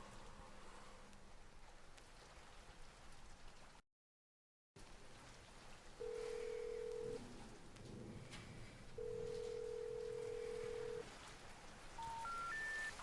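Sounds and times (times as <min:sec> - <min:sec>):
telephone ringback tone: 0:06.0 - 0:07.2, 0:09.0 - 0:11.0, 0:12.0 - 0:13.0.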